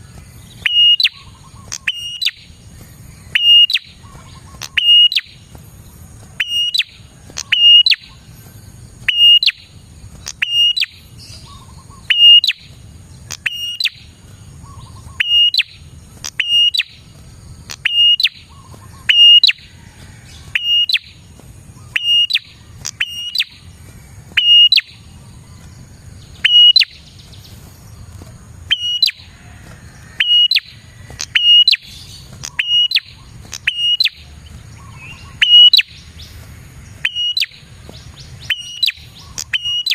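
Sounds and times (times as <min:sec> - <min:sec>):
bird short sharp calls: 0:24.3 - 0:25.1, 0:26.4 - 0:27.7, 0:28.7 - 0:29.4, 0:30.0 - 0:36.4.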